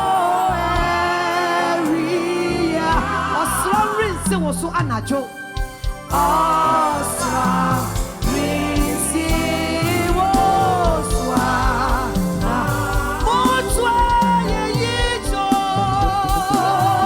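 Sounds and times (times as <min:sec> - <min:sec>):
gospel song with band: 0:00.0 - 0:17.0.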